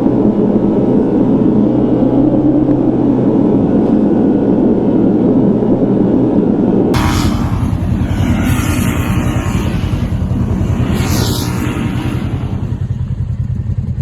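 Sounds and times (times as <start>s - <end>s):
off-road vehicle engine running: 7.0s - 14.0s.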